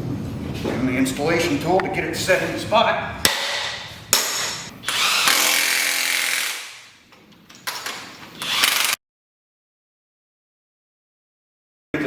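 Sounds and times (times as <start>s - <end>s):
handheld power tool motor whine: 4.8s - 6.8s, 8.4s - 9.0s.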